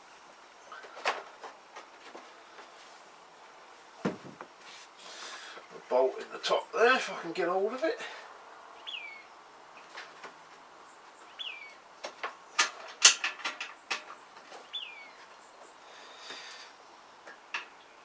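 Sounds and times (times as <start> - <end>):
parts clicking and knocking: 12.0 - 14.6, 17.2 - 17.8.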